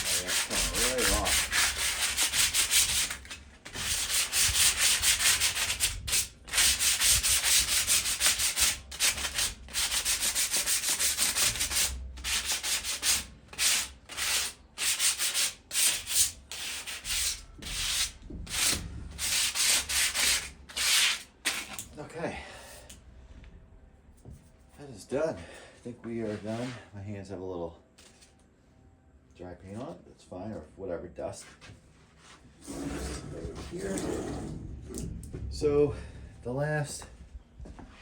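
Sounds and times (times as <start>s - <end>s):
sandpaper rasping on metal: 0.0s - 21.8s.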